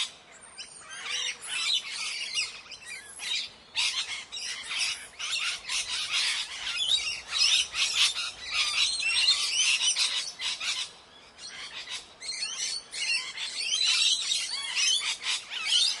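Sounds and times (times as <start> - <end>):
parrots chattering and squawking: 3.2 - 10.9, 11.5 - 16.0.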